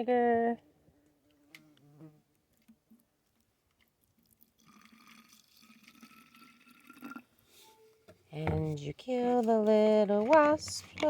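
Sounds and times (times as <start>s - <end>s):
liquid being mixed: 4.1s - 7.3s.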